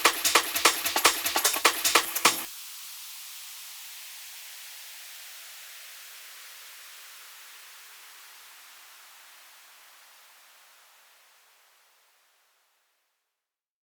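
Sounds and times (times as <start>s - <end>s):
white noise hiss: 0.0s - 12.9s.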